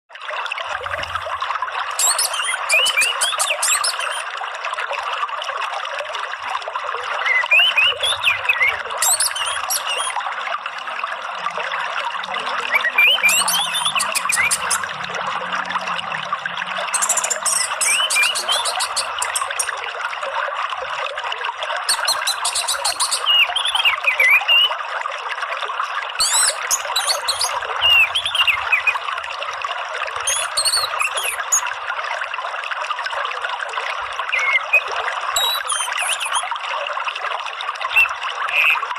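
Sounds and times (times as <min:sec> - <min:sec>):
running water rushing: 0:00.1 - 0:38.9
songbird chirping and whistling: 0:02.0 - 0:04.2, 0:07.3 - 0:10.2, 0:12.7 - 0:14.9, 0:16.9 - 0:19.8, 0:21.9 - 0:24.7, 0:26.2 - 0:29.0, 0:30.3 - 0:31.6, 0:34.3 - 0:36.4.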